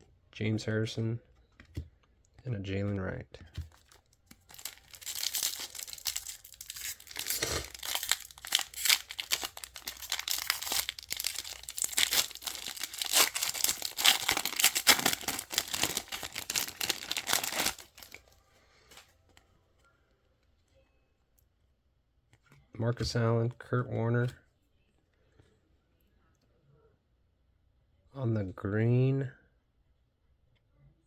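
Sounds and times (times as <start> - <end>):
plastic foil wrapper crinkling: 3.7 - 18.3.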